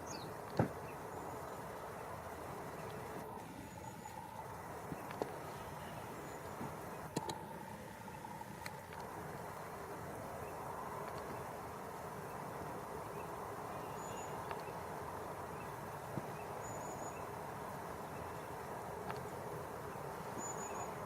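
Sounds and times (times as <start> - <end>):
river water flowing: 0.0 - 21.0
faint high chirps: 13.0 - 14.8, 19.9 - 21.0.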